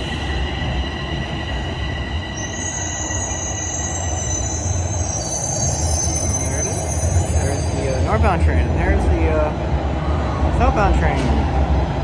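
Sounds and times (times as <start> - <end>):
train squeal: 0.0 - 8.2
steady high-pitched tones: 0.0 - 9.6
subway train rumble: 0.0 - 12.0.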